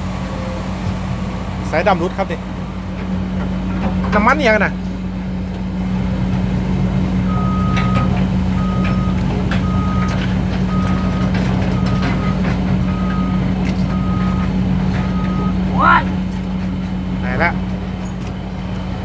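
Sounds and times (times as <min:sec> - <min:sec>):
diesel truck engine running: 0:00.0 - 0:19.0
reversing alarm beeps: 0:07.3 - 0:15.6.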